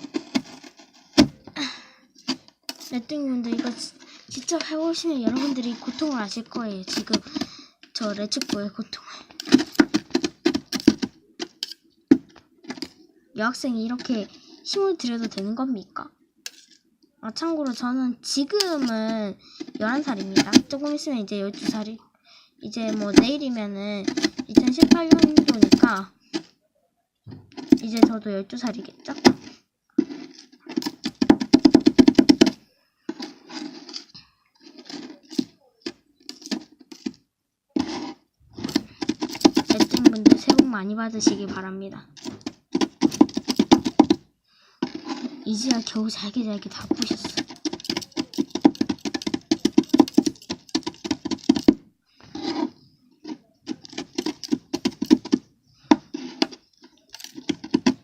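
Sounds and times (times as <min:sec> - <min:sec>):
cookies crushing: 0:00.0 - 0:13.1, 0:29.0 - 0:40.7, 0:42.2 - 0:46.0, 0:46.7 - 0:58.0
spatulas tapping and scraping: 0:00.0 - 0:13.1, 0:13.9 - 0:15.6, 0:16.4 - 0:16.8, 0:17.6 - 0:22.0, 0:22.7 - 0:26.6, 0:27.3 - 0:58.0
tapping and chopping on metal plate: 0:09.3 - 0:12.9, 0:24.0 - 0:26.5, 0:29.2 - 0:33.9, 0:37.8 - 0:41.4, 0:42.2 - 0:44.2, 0:46.8 - 0:51.8, 0:53.7 - 0:58.0
scrapes on plate: 0:33.1 - 0:35.4.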